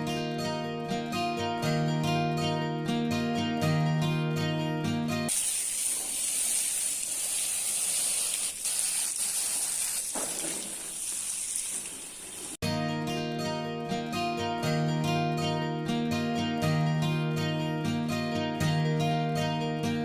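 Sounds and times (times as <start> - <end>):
guitar music: 0.0 - 5.3, 12.6 - 20.0
water jet spraying: 5.3 - 12.6.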